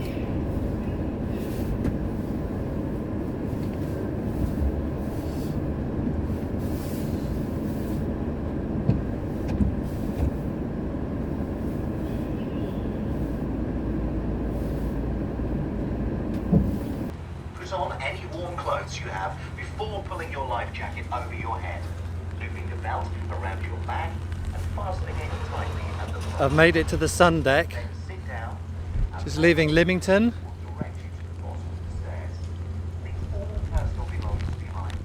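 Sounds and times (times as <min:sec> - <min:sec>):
ferry engines rumbling: 0:00.0 - 0:35.0.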